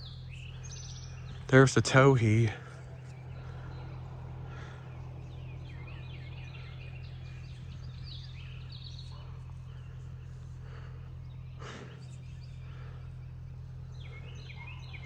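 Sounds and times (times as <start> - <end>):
songbirds chirping and trilling: 0.0 - 15.0
steady low hum: 0.0 - 15.0.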